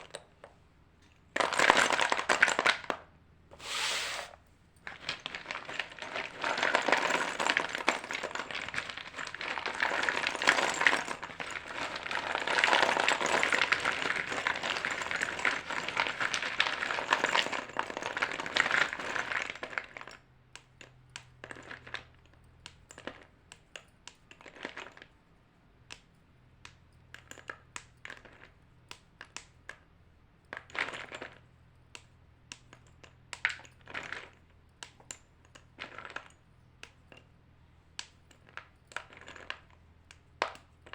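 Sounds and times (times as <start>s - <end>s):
chalk crunching: 3.5s - 4.4s.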